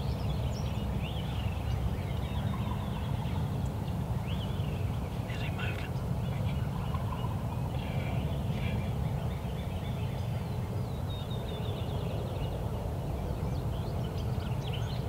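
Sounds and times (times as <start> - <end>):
turkey calls: 6.5 - 8.8.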